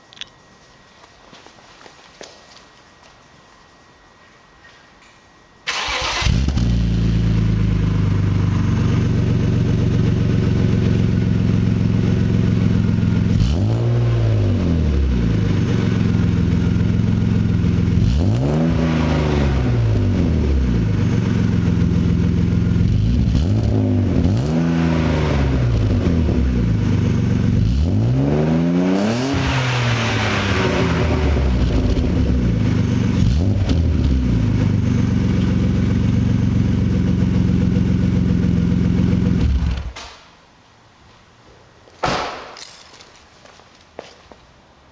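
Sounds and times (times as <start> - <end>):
car engine idling and revving: 5.8 - 40.0.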